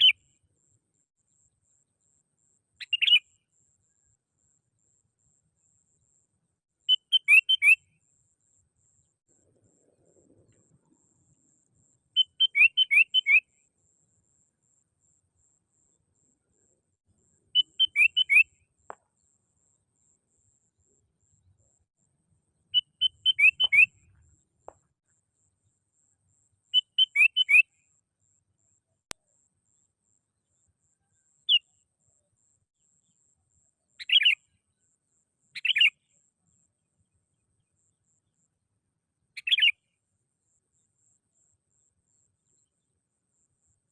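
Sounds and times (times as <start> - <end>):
bulbul calling: 2.8 - 3.3, 6.9 - 7.9, 12.2 - 13.5, 17.5 - 19.1, 22.7 - 24.2, 26.7 - 27.7, 34.0 - 34.5, 35.6 - 36.1, 39.4 - 39.9
bird calling bubbly whistles: 22.8 - 24.0.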